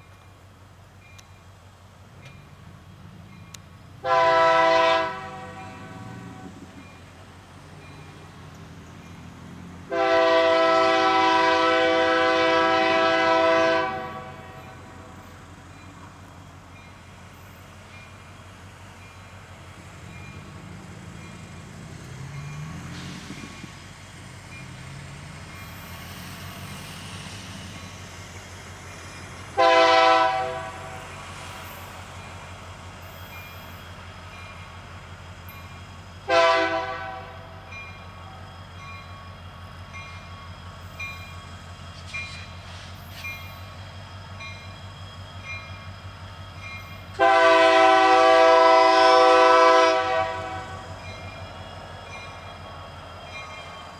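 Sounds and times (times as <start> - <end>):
locomotive low rumble: 0.0 - 53.9
locomotive air horn blasts: 4.0 - 6.6, 9.9 - 15.0, 29.6 - 31.0, 36.3 - 37.6, 47.2 - 50.9.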